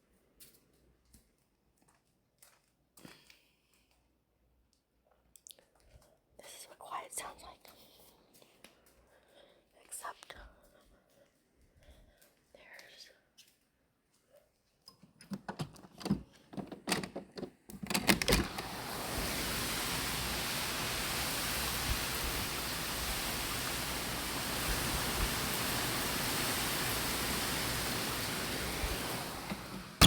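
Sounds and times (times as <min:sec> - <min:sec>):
heavy rain: 0:18.4 - 0:30.0
rushing wind: 0:18.5 - 0:30.0.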